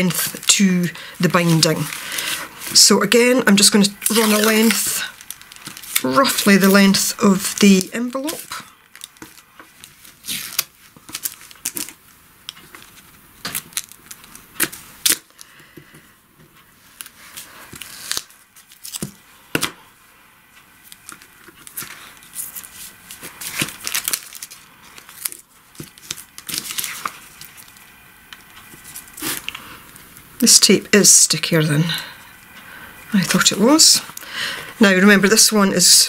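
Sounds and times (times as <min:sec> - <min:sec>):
paper envelopes crinkling: 0:00.0 - 0:15.7, 0:16.8 - 0:19.2, 0:20.8 - 0:30.2
tape tearing: 0:03.6 - 0:15.4, 0:17.7 - 0:19.2, 0:20.9 - 0:27.8, 0:28.7 - 0:29.6.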